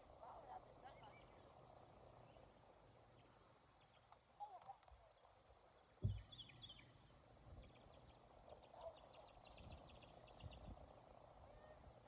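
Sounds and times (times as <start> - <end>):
low thump: 6.0 - 6.3.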